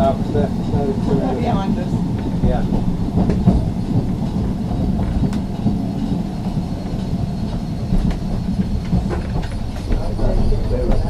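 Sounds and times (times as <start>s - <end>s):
tram rumbling along track: 0.0s - 11.0s.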